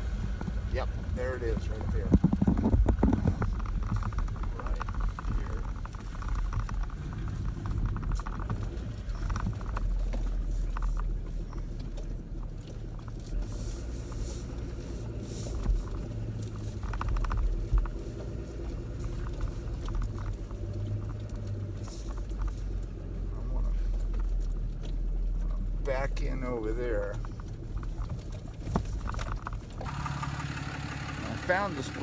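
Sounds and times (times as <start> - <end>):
truck engine drone: 0.0 - 32.0
clicks knocks and rattles: 1.6 - 13.4.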